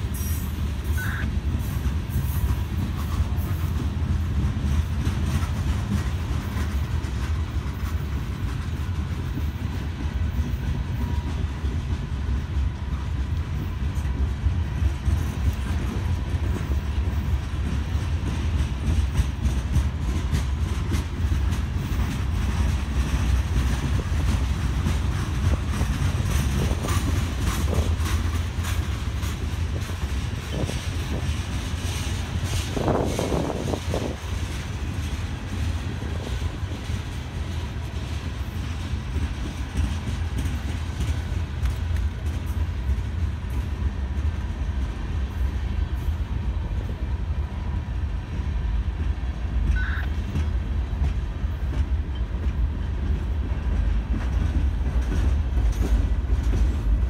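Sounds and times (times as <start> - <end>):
wheels clicking over rail joints: 0.0 - 47.0, 48.3 - 57.0
steel wheels rumbling on rails: 0.0 - 57.0.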